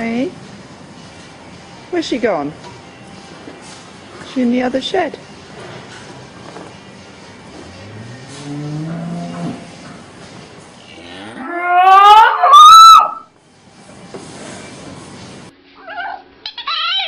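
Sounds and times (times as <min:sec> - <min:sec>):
cow mooing: 0:07.6 - 0:09.9, 0:10.9 - 0:12.6.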